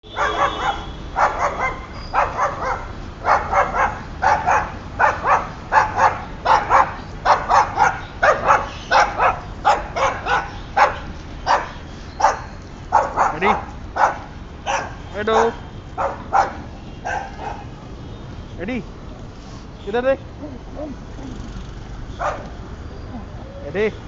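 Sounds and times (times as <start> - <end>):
dog barking: 0.1 - 17.7, 22.1 - 22.6.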